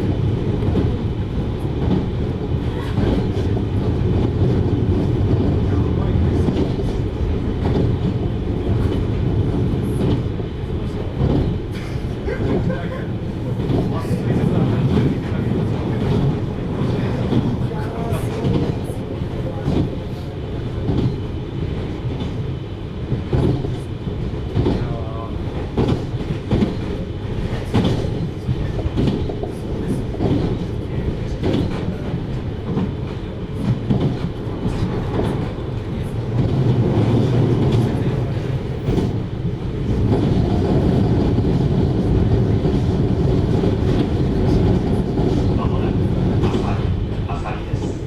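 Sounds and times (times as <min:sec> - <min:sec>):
train wheels rumbling on rail: 0:00.0 - 0:48.0
clacks over rail joints: 0:01.6 - 0:12.7, 0:23.1 - 0:48.0.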